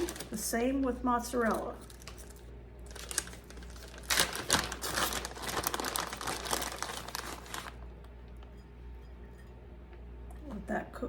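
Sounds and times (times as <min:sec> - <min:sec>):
plastic packaging crinkling: 0:00.0 - 0:00.5, 0:01.3 - 0:08.5.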